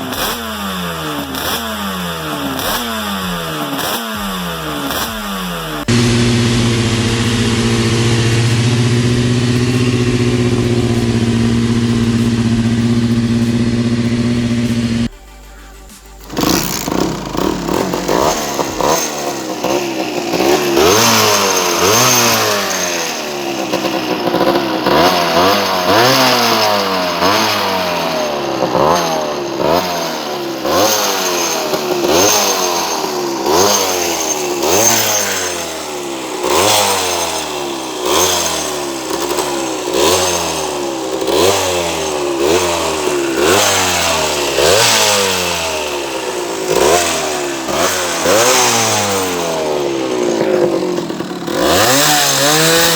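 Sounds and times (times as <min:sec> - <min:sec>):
motorcycle engine revving: 0:00.0 - 0:15.2, 0:15.9 - 0:52.9.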